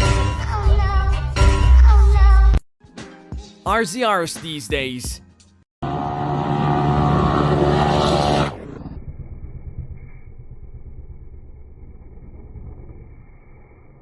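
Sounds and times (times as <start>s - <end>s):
vehicle engine revving: 5.8s - 9.9s
engine low rumble: 8.5s - 14.0s.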